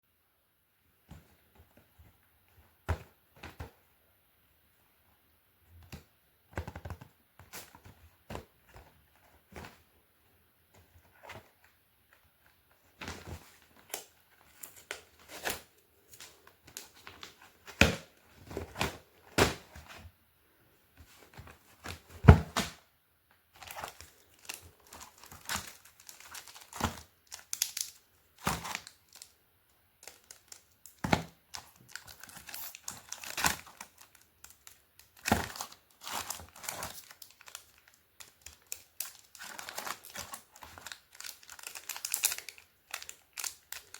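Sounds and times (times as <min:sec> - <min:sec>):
chocolate packaging crinkling and tearing: 0:23.6 - 0:29.4, 0:30.0 - 0:43.9.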